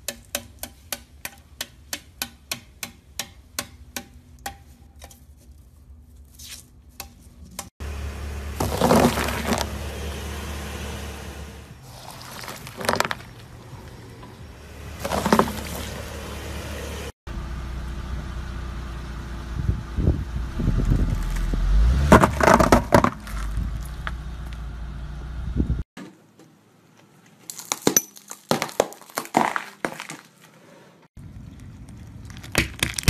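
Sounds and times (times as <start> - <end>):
low car rumble: 7.8 - 25.9
crunching and cracking under tyre: 8.6 - 9.8, 11.8 - 16.2, 20.8 - 24.7, 27.0 - 30.6, 31.2 - 33.0
lollipops shattering under tyre: 27.5 - 30.3, 32.3 - 33.0.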